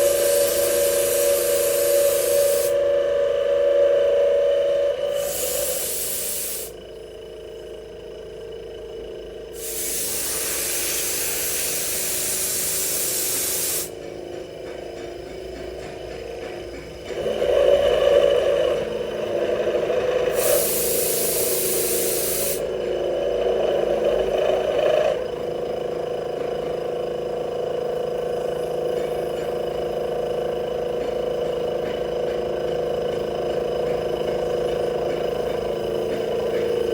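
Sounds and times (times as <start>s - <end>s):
loud hiss: 0.0s - 3.0s, 5.0s - 6.8s, 9.6s - 13.9s, 20.3s - 22.6s
milling machine cutting metal: 0.0s - 6.6s.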